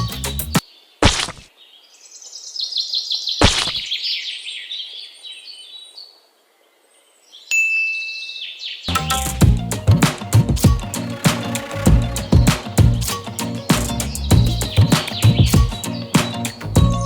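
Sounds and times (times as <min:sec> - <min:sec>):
birds chirping and twittering: 0:00.0 - 0:17.0
sharp hits: 0:08.9 - 0:17.0.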